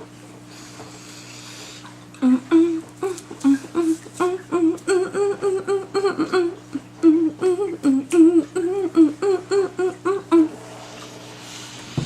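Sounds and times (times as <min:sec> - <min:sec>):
high voice humming a tune: 0:02.2 - 0:11.8.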